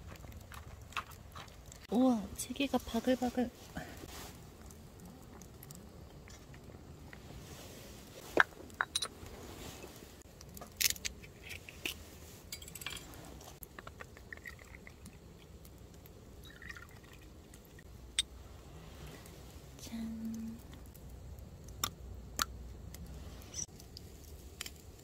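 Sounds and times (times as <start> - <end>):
soup bubbling at a boil: 13.4 - 18.9.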